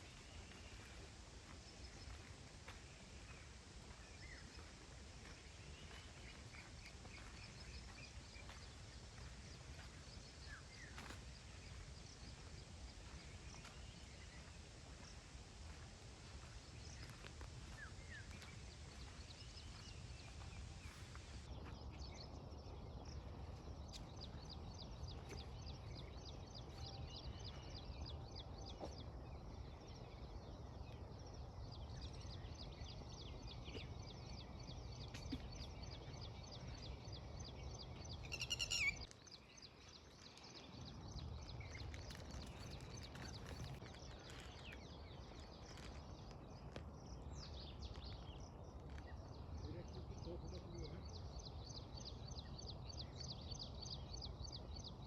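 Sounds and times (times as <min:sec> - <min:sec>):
birds chirping and trilling: 0:01.6 - 0:55.0.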